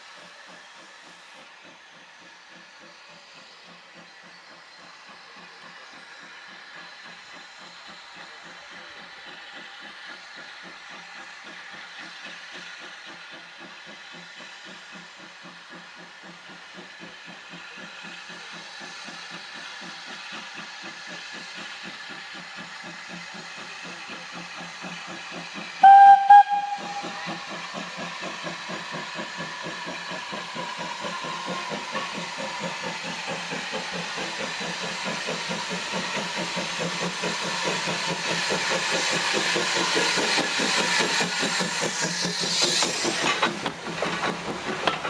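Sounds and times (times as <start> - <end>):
steam locomotive exhaust beats: 0.0 - 45.0
train whistle blast: 25.8 - 27.8.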